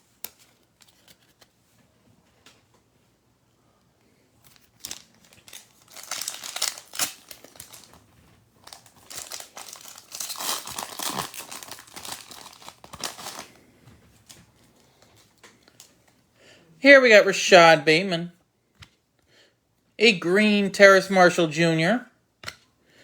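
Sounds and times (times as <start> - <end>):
plastic wrapper tearing and crinkling: 4.4 - 13.6.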